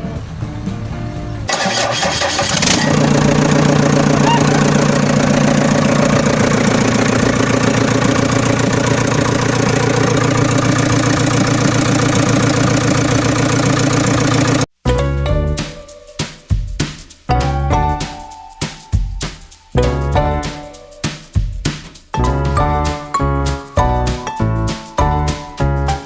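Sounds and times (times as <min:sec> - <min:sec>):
tractor engine cranking: 0:01.5 - 0:14.7
tractor engine idling: 0:01.5 - 0:14.7.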